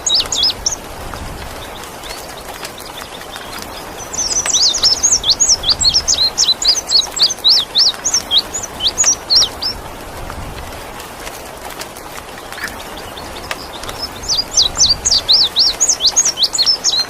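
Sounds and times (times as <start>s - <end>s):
rain hiss: 0.0s - 17.0s
bird singing high chirps: 1.6s - 9.8s, 12.9s - 17.0s.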